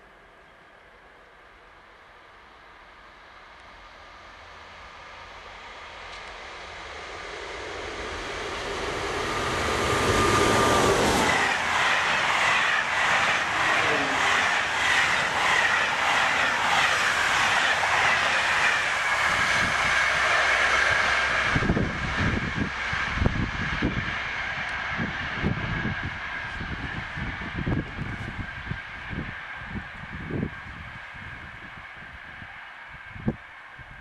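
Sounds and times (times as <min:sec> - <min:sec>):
train passing at high speed: 0:00.0 - 0:34.0
wind buffeting microphone: 0:08.4 - 0:34.0.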